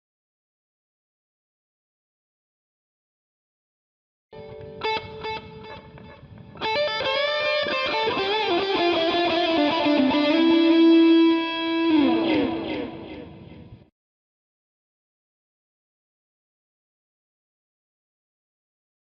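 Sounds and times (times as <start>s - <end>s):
electric guitar lead phrase: 4.4s - 13.8s.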